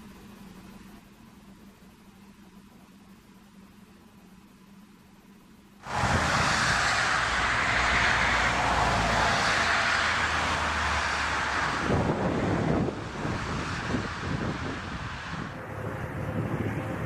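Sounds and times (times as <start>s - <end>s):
aircraft roaring past: 5.8s - 17.0s
wind on microphone: 5.8s - 17.0s.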